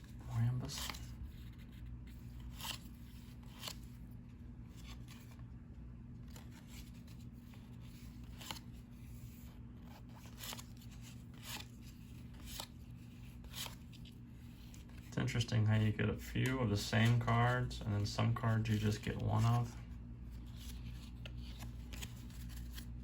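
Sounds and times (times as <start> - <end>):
steady low hum: 0.0 - 23.0
cardboard cards sliding: 6.3 - 15.1, 20.3 - 23.0.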